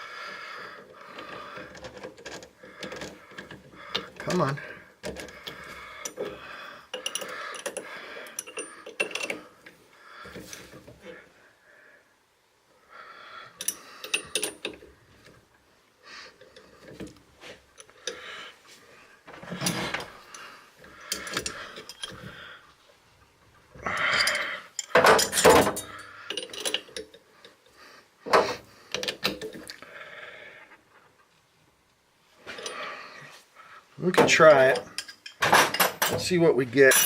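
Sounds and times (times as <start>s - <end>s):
metal tools clinking on workbench: 6.9s - 9.4s, 13.6s - 14.8s, 24.0s - 27.2s, 34.2s - 37.0s.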